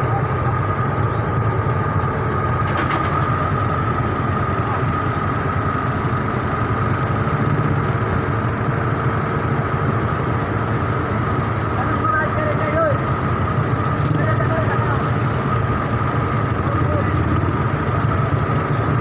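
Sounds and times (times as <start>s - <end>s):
engine idling: 0.0s - 19.0s
engine whine: 0.0s - 19.0s.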